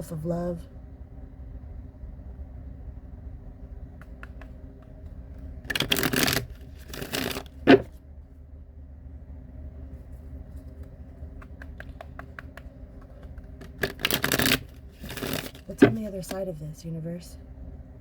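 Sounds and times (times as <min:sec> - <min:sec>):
cards shuffled by hand: 0:04.0 - 0:08.0, 0:10.1 - 0:16.4.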